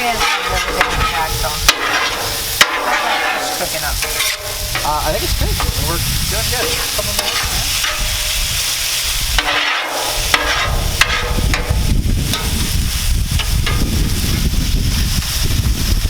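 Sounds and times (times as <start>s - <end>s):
fish sizzling on a griddle: 0.0s - 16.0s
utensil scraping griddle: 0.0s - 16.0s.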